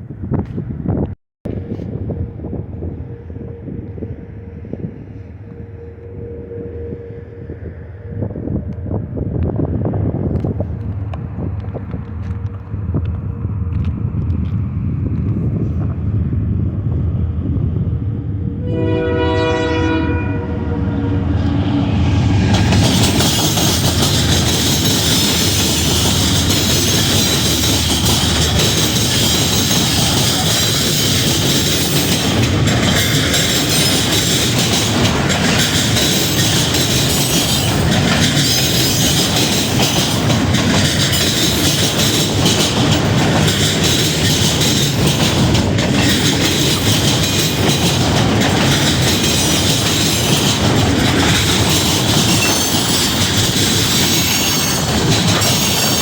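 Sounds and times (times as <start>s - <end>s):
freight train cars rumbling: 0.0s - 56.0s
wheels clicking over rail joints: 22.3s - 56.0s.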